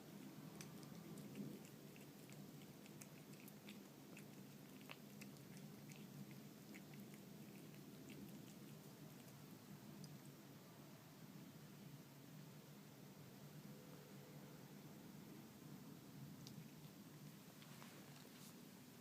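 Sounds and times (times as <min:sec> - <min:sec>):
low steady hum: 0:00.0 - 0:19.0
cat chewing food: 0:00.1 - 0:10.5, 0:16.1 - 0:18.9.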